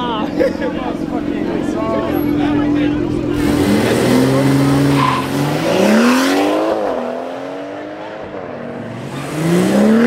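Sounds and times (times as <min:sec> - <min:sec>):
car engine accelerating hard: 0:01.1 - 0:10.0.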